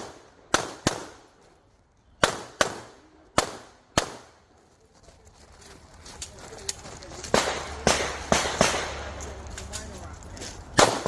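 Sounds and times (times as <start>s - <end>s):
pistol shots with echo: 0.0s - 1.2s, 2.2s - 4.4s, 7.3s - 9.2s, 10.8s - 11.0s.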